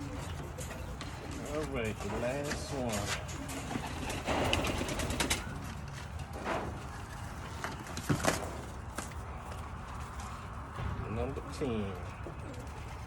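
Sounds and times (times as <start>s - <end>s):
pigeons cooing: 0.0s - 9.5s, 11.4s - 13.0s
rustling and scuffing: 0.2s - 3.9s.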